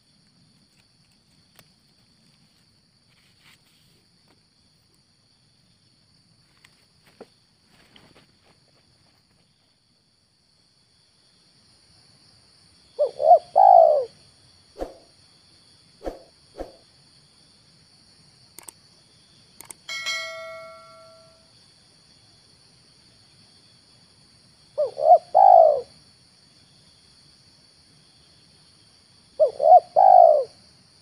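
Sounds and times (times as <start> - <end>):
dove cooing: 13.0 - 14.1, 24.8 - 25.9, 29.4 - 30.6
bell-like metallic ring: 19.9 - 21.5.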